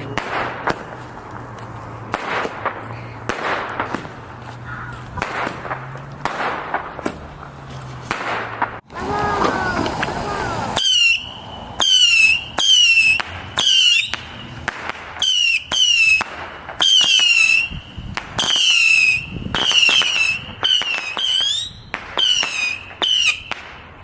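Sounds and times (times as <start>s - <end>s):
whistling fireworks: 0.0s - 1.0s, 5.2s - 24.0s
firework pops: 0.0s - 4.2s.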